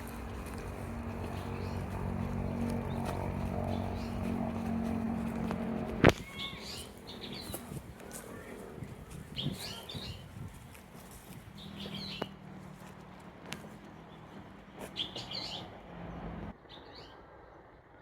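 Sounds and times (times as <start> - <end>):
low steady hum: 0.0 - 9.4
birds chirping: 0.0 - 17.2.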